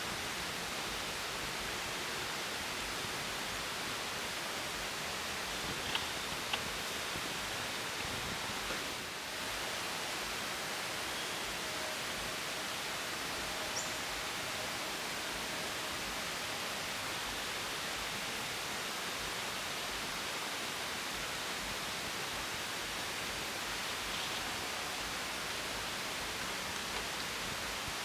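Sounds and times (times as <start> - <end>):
outdoor ambient hiss: 0.0 - 28.0.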